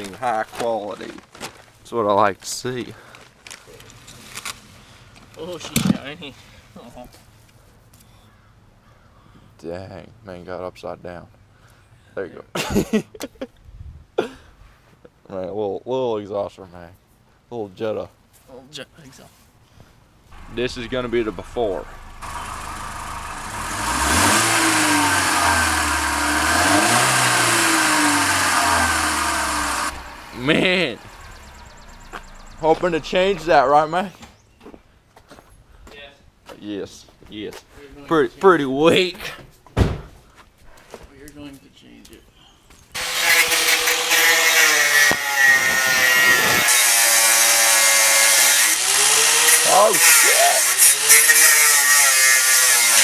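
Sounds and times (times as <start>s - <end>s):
angle grinder cutting metal pipe: 20.4s - 33.6s, 43.0s - 53.0s
car engine revving: 20.4s - 33.7s.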